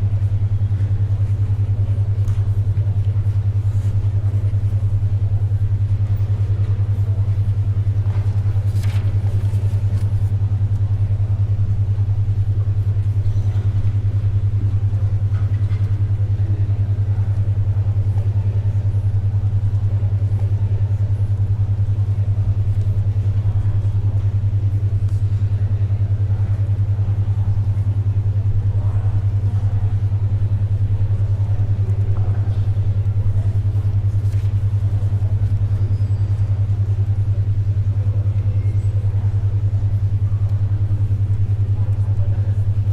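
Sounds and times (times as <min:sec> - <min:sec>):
pulsing low hum tone: 0:00.0 - 0:42.9
paper rustling: 0:08.1 - 0:10.4, 0:34.2 - 0:34.6.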